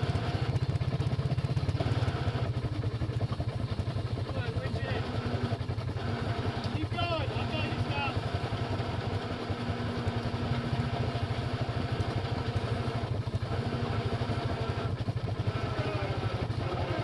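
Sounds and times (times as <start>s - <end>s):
off-road vehicle engine idling: 0.0s - 17.0s
electric winch whine: 4.2s - 17.0s.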